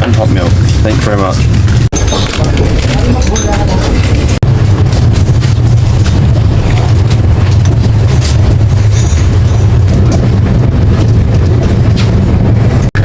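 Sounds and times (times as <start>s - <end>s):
train carriage rumbling and rattling: 0.0s - 13.0s.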